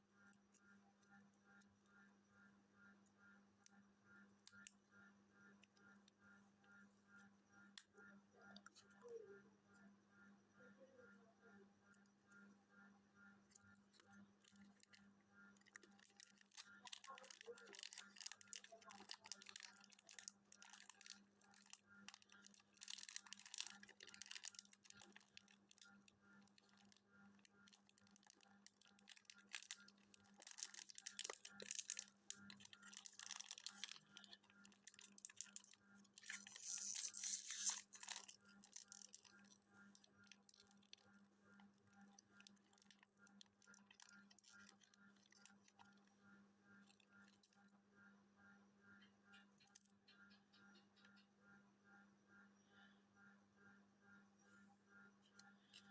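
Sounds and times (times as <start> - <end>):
faint low hum: 0.0 - 55.9
paper rustling and crackling: 15.7 - 25.8, 27.8 - 39.4.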